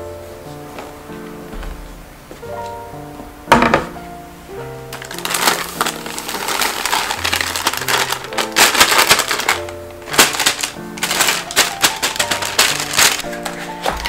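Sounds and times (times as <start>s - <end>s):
background music: 0.0s - 14.0s
plastic bag crinkling: 4.9s - 14.0s
dry mix pouring into bowl: 5.0s - 13.3s.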